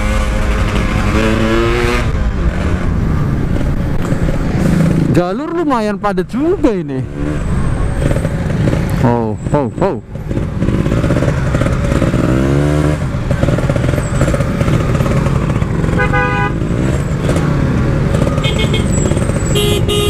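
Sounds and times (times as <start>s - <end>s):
two-stroke motorcycle engine: 7.1s - 20.0s
vehicle horn toot: 15.8s - 16.8s, 18.4s - 20.0s.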